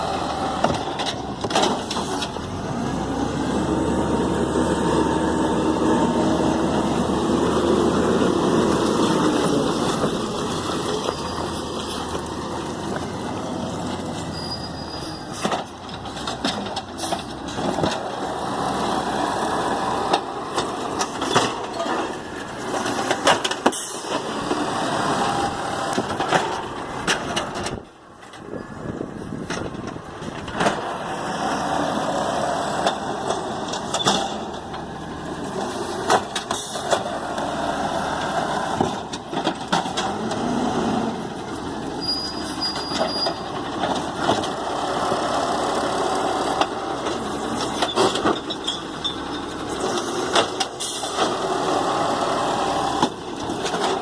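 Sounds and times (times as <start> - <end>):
garbage truck engine running: 0.0 - 54.0.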